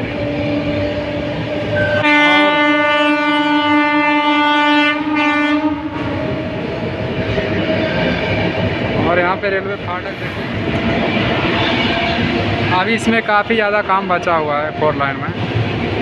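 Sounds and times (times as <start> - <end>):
train wheels on track: 0.0 - 16.0
train horn blast: 1.7 - 6.3.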